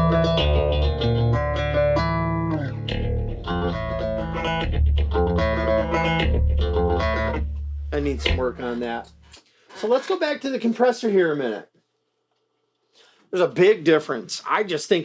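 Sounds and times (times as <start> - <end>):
plucked bass guitar notes: 0.0 - 9.3.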